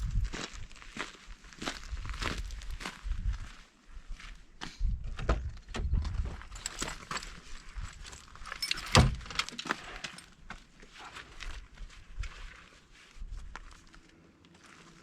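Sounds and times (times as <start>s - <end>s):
footsteps on rocky trail: 0.0s - 15.0s.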